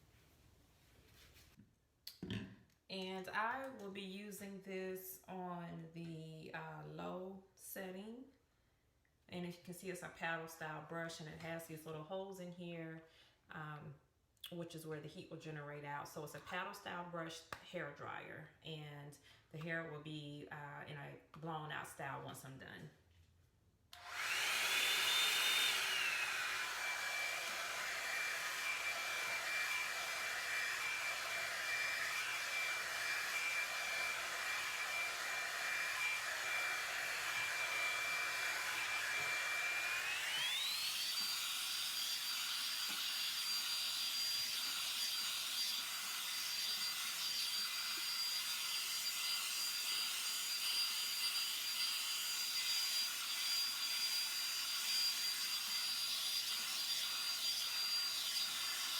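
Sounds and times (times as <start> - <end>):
hair dryer running: 24.0 - 58.9.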